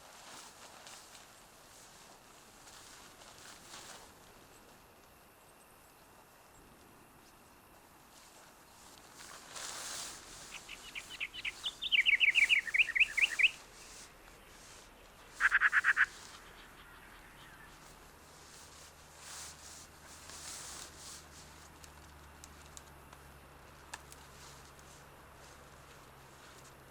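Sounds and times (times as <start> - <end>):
small songbird singing: 10.3 - 18.0.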